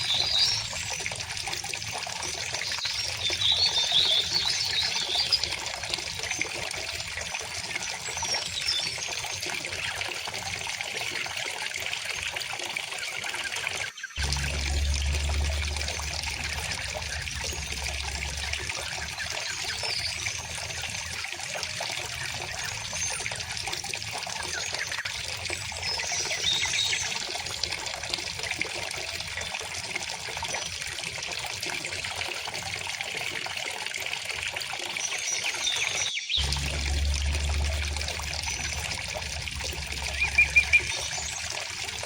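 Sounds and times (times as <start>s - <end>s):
stream flowing and trickling: 0.0s - 42.0s
low rumble: 14.2s - 20.6s, 36.4s - 42.0s
faint bird chirps: 37.0s - 41.6s.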